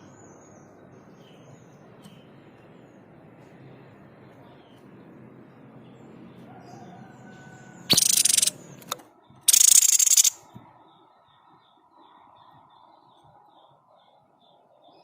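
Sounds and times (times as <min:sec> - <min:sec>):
bird harsh rattling call: 0:07.9 - 0:08.6, 0:09.5 - 0:10.4
faint thin bird chirps: 0:07.9 - 0:08.6, 0:09.2 - 0:15.0.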